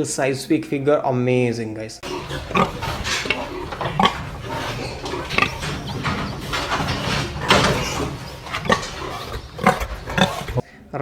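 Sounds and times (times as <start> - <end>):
pig grunting: 2.0 - 10.7.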